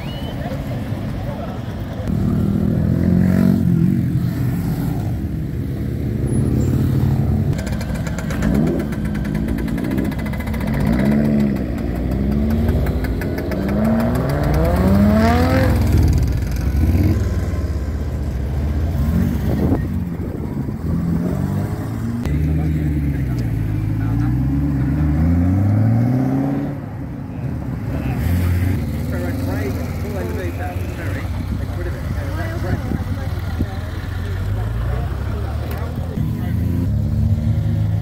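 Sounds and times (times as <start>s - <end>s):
car engines revving: 0.0s - 38.0s
sports car accelerating: 8.3s - 27.0s.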